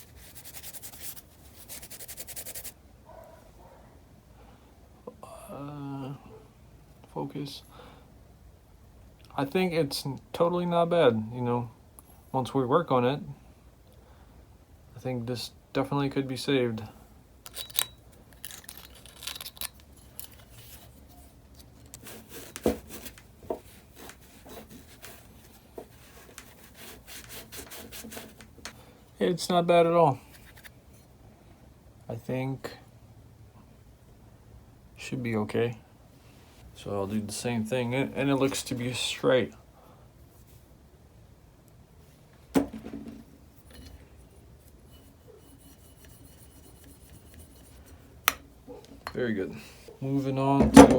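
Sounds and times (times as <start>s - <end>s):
small metal parts clicking: 17.4s - 20.5s.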